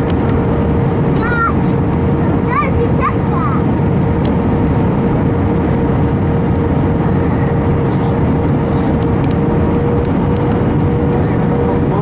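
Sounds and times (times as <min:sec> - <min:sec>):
airliner engines and rushing air: 0:00.0 - 0:12.0.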